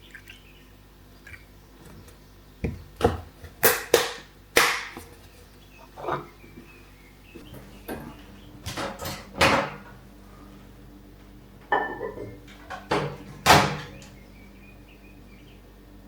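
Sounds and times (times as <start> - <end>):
faint steady hum: 0.0 - 16.0
knocks and clunks in kitchen: 1.8 - 5.1, 7.4 - 10.2, 11.2 - 14.2.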